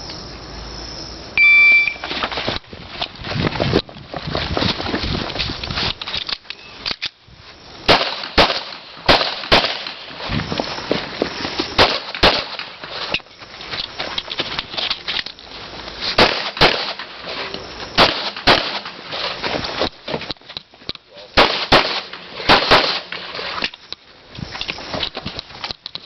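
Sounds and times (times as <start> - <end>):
pistol shots in pairs: 7.9 - 10.1, 11.8 - 12.7, 16.2 - 17.1, 18.0 - 19.0, 21.4 - 23.1.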